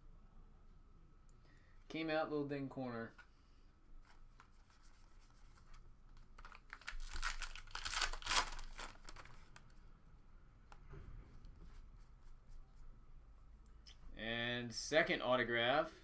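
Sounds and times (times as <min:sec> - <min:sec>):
wrapper tearing and crinkling: 0:06.4 - 0:09.6.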